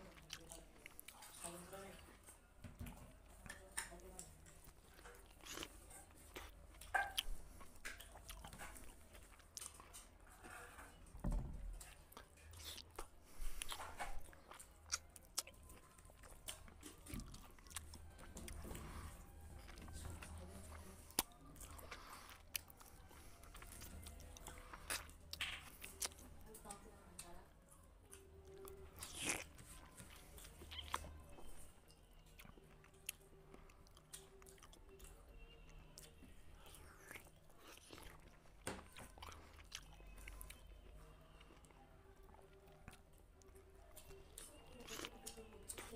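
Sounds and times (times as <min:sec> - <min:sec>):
chewing and crunching: 0:00.0 - 0:45.9.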